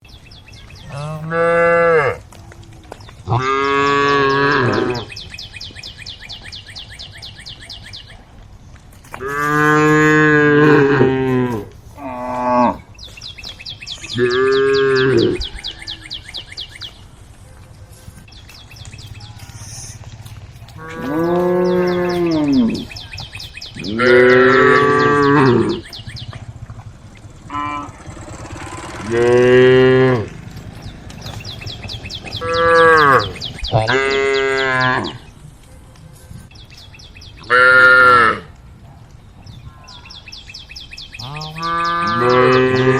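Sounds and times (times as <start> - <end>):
cows mooing: 0.8 - 2.4, 3.2 - 5.2, 9.2 - 12.9, 14.0 - 16.2, 20.7 - 23.0, 23.8 - 35.3, 37.4 - 38.5, 41.2 - 42.9.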